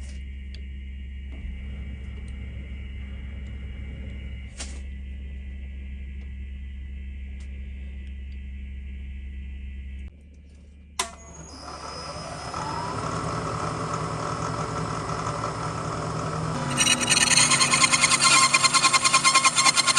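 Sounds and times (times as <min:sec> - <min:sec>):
machine spinning up whine: 0:00.0 - 0:19.9
machine tool humming: 0:00.6 - 0:10.1, 0:11.0 - 0:19.9.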